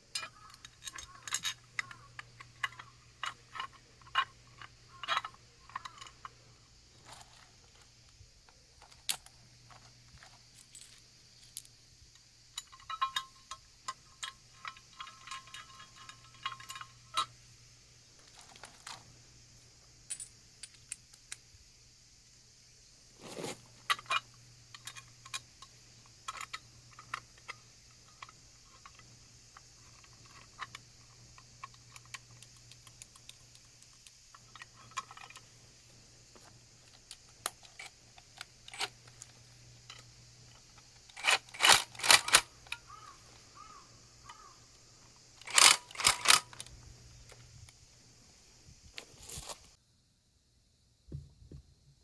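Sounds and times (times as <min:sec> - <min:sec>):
faint steady hum: 0:00.0 - 0:52.0
metal parts and tools clinking: 0:00.1 - 0:06.4, 0:07.0 - 0:08.1, 0:08.8 - 0:11.8, 0:12.5 - 0:17.4, 0:18.2 - 0:19.1, 0:20.0 - 0:21.4, 0:23.2 - 0:35.6, 0:36.3 - 0:44.5, 0:45.4 - 0:47.5
rapid even clicking: 0:41.1 - 0:44.4, 0:45.4 - 0:46.7.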